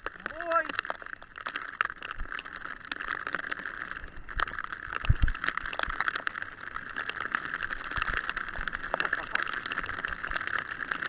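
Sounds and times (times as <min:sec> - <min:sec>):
bike clicks and rattles: 0:00.0 - 0:11.0
mountain bike riding on rough trail: 0:00.0 - 0:11.0.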